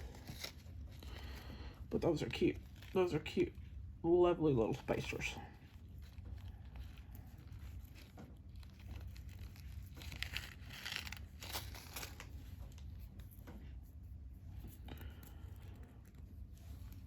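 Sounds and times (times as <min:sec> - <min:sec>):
plastic bags crinkling: 0:04.8 - 0:13.0.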